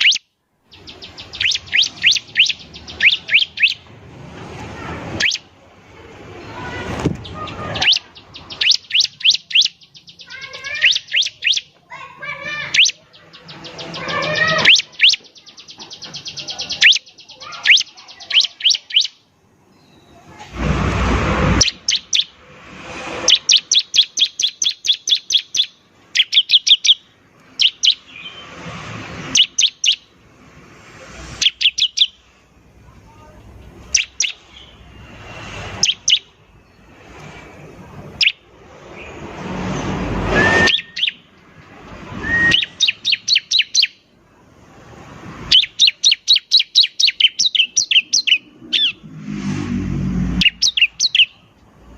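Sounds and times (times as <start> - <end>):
bird singing rattling trills: 0.0 - 3.9, 5.2 - 5.5, 7.2 - 20.2, 21.6 - 22.4, 23.2 - 28.5, 29.3 - 30.2, 31.4 - 32.2, 33.7 - 37.0, 38.1 - 39.2, 40.4 - 41.4, 42.3 - 44.1, 45.5 - 49.0, 50.3 - 51.5
bird harsh rasp: 0.8 - 5.5, 6.5 - 19.2, 20.3 - 32.4, 33.6 - 44.0, 44.7 - 51.9.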